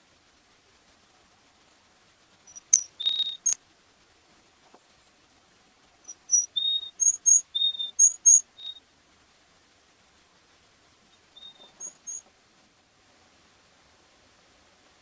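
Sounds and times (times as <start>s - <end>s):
bird calling high clear notes: 2.5s - 3.6s.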